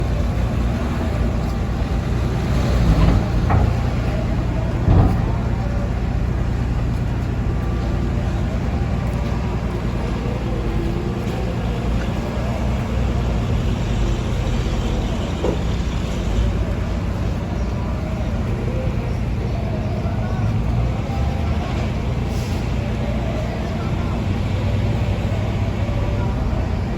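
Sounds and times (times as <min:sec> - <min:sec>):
diesel engine rumbling: 0:00.0 - 0:26.9.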